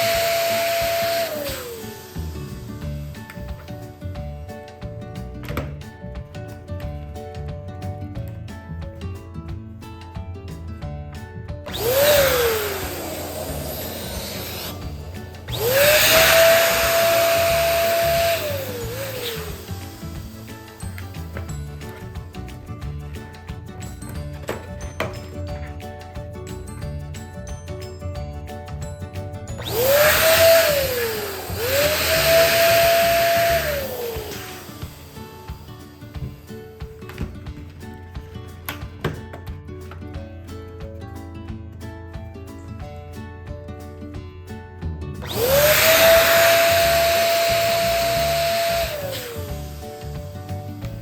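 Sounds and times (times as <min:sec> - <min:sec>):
electric balloon pump whining: 0:00.0 - 0:04.8, 0:11.7 - 0:23.2, 0:29.4 - 0:37.5, 0:45.2 - 0:51.0.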